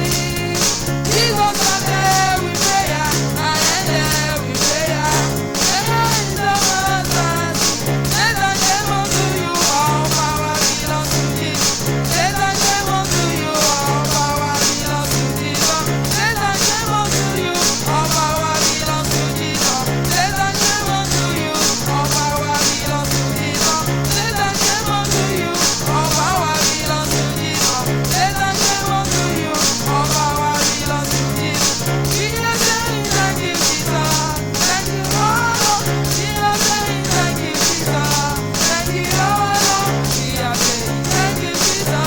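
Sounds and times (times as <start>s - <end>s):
bass pulses: 0.0s - 42.0s
church praise band music: 0.0s - 42.0s.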